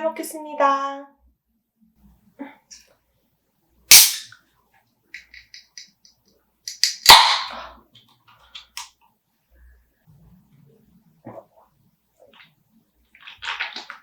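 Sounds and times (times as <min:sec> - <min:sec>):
beer can cracking open: 0:03.9 - 0:04.3.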